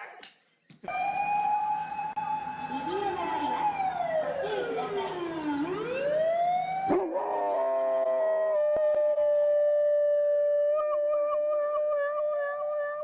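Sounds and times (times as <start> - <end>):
wailing siren: 0.9 - 13.0
dog howling: 6.9 - 9.2, 10.7 - 13.0.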